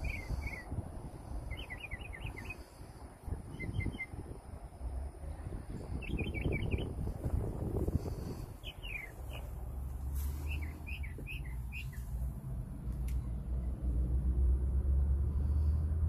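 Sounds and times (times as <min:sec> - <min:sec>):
small birds chirping: 0:00.0 - 0:04.5, 0:05.2 - 0:12.3
steady low rumble: 0:00.0 - 0:16.0.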